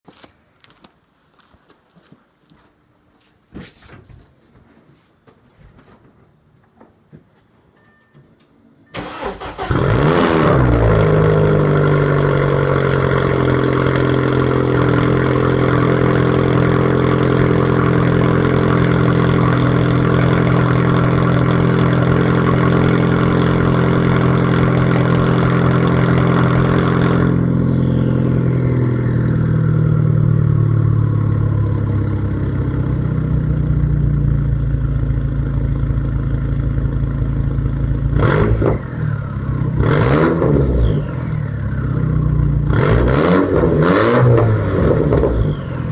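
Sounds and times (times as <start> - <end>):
car engine cold start: 8.9 - 11.8.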